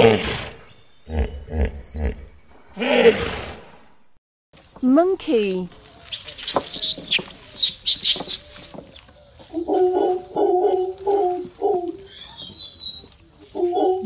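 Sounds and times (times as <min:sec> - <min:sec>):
monkeys squealing: 0:06.1 - 0:09.0, 0:09.7 - 0:14.0
monkeys hooting: 0:06.1 - 0:14.0.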